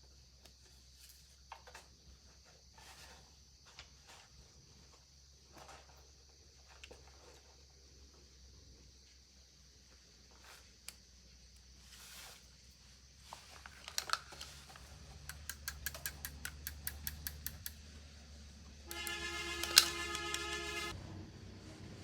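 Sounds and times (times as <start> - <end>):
mechanical clicks: 15.3 - 17.8, 18.9 - 20.9
music with held chord: 18.9 - 21.0.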